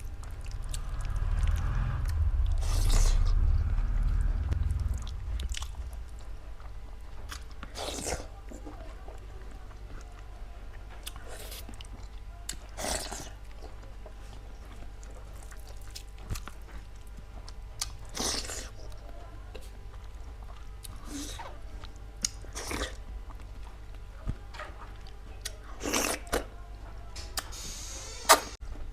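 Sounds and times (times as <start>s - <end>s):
person chewing food: 0.0s - 26.5s.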